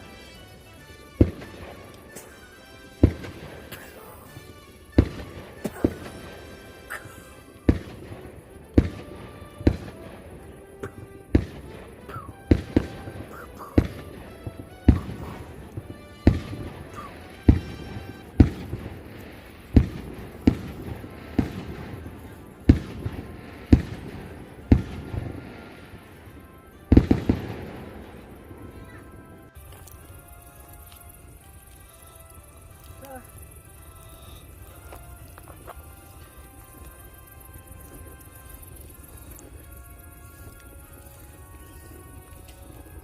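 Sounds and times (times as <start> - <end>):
sharp bangs: 1.1 - 26.2.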